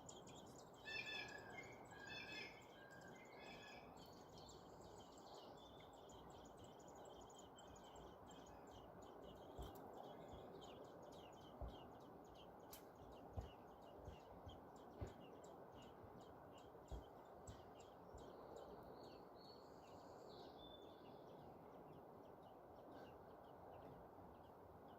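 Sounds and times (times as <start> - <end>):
birds chirping: 0.0 - 24.9
quiet outdoor background noise: 0.0 - 24.9
soft low thumps: 11.3 - 12.4, 13.0 - 16.2.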